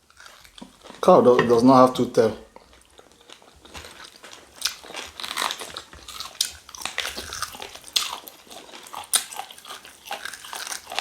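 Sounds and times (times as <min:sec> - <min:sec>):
people chewing: 0:00.0 - 0:11.0.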